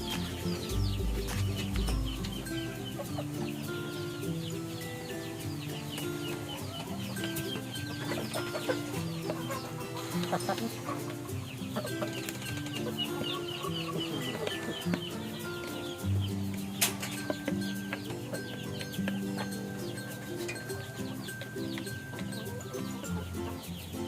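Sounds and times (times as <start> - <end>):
background music: 0.0 - 24.0
chickens clucking: 0.0 - 24.0.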